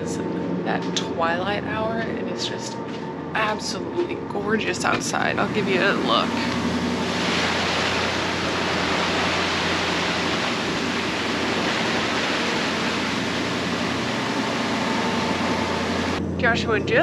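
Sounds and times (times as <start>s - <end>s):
low engine hum: 0.0s - 17.0s
wind rushing: 4.8s - 16.3s
sea water rushing: 5.1s - 16.2s.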